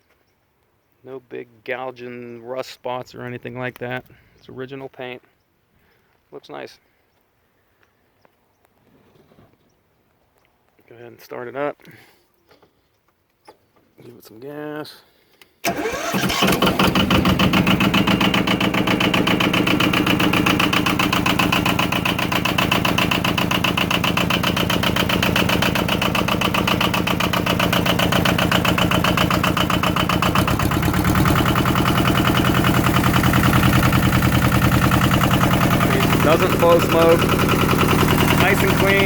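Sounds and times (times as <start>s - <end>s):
tractor diesel engine starting: 15.6s - 39.0s.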